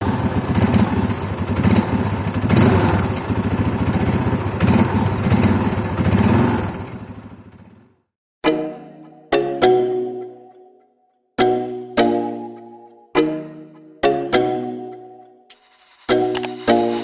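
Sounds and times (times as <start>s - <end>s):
diesel engine clattering: 0.0s - 7.9s.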